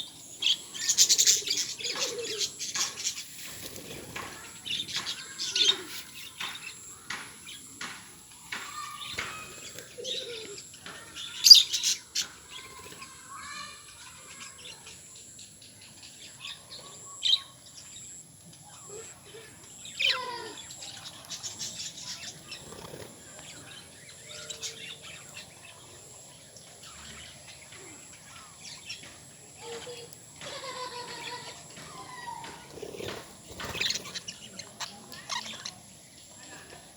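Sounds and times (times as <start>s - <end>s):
lovebirds chirping: 0.0s - 36.9s.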